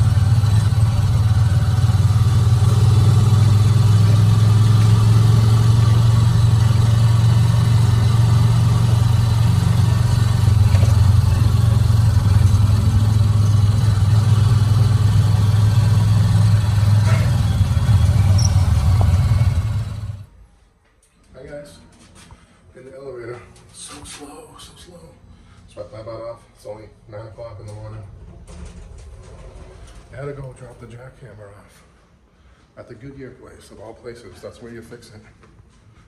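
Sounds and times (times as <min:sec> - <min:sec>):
vehicle engine and road noise: 0:00.0 - 0:20.4.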